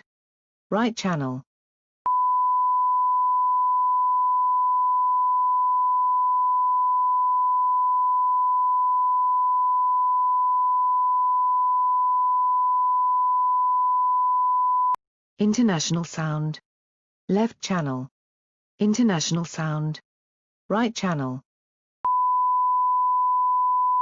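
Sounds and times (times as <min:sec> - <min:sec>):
steady sine-wave tone: 0:02.1 - 0:15.0, 0:22.1 - 0:24.0.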